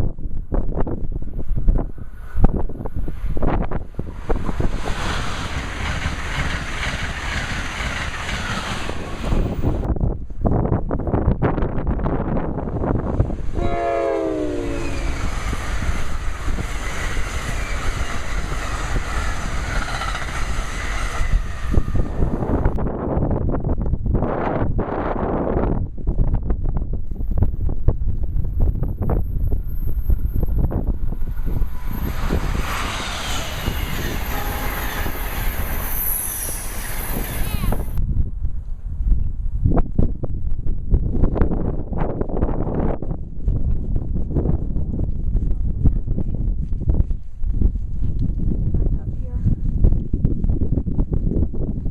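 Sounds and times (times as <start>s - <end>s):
wind buffeting microphone: 0.0s - 51.9s
train rushing on rails: 0.8s - 10.4s, 11.0s - 23.2s, 27.0s - 38.0s
train horn chord: 13.6s - 15.2s, 33.6s - 35.5s.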